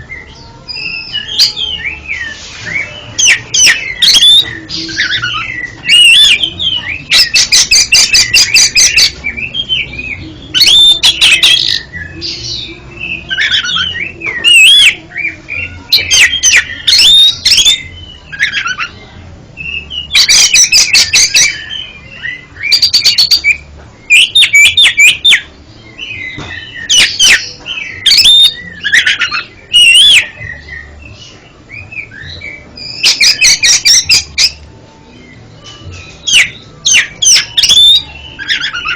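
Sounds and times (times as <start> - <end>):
magpie-robin singing: 0.0 - 38.9.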